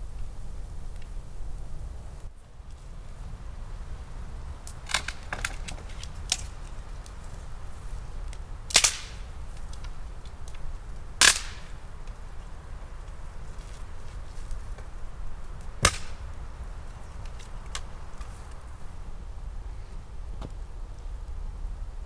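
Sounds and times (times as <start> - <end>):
steady low rumble: 0.0 - 22.0
sharp ringing cracks: 8.7 - 9.3, 11.2 - 11.8, 15.8 - 16.3.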